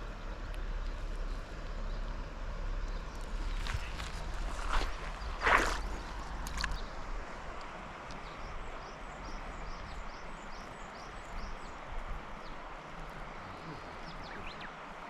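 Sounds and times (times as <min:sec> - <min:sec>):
river water rushing: 0:03.1 - 0:15.0.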